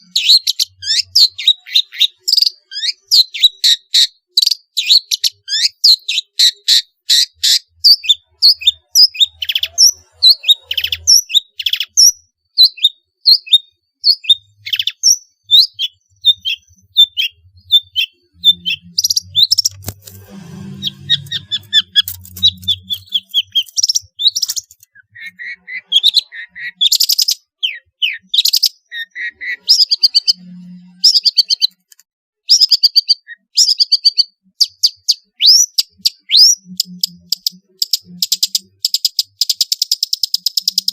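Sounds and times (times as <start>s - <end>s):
bird singing sharp chirps: 0.0s - 31.8s.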